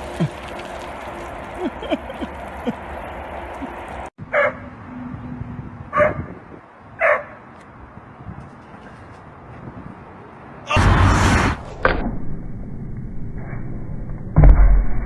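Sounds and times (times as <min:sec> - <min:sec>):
dog barking: 0:04.3 - 0:04.7, 0:05.9 - 0:06.3, 0:07.0 - 0:07.4.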